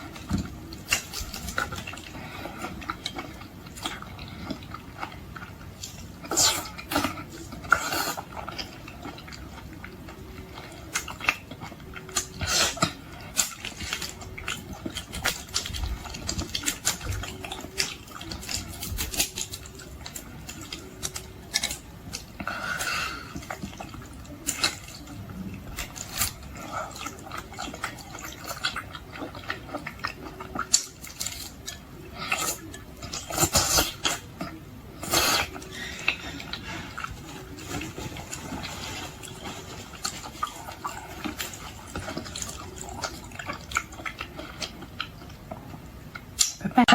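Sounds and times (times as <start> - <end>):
wet chewing and lip smacks: 23.2 - 46.7.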